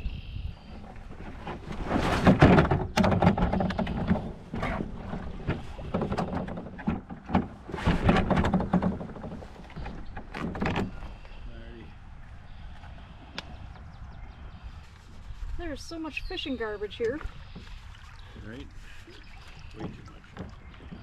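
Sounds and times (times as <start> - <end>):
paddle splashing in water: 0.7 - 11.2, 16.9 - 21.0
paddle knocking against hull: 0.8 - 11.1, 19.6 - 21.0.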